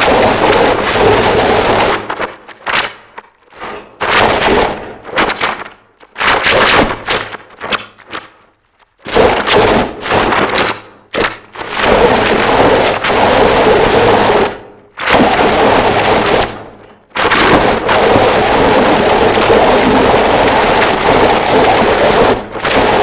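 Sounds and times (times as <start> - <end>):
harsh distorted noise music: 0.0 - 2.7, 9.1 - 23.0.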